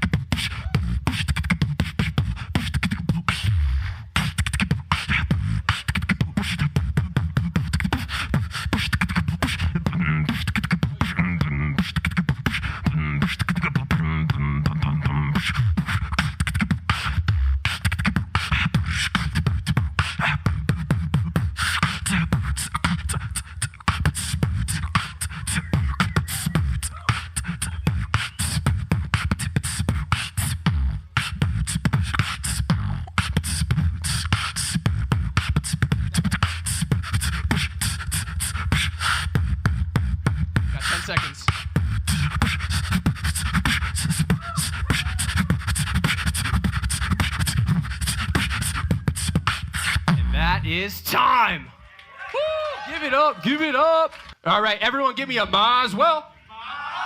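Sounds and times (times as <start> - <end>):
person beatboxing: 0.0 - 51.6.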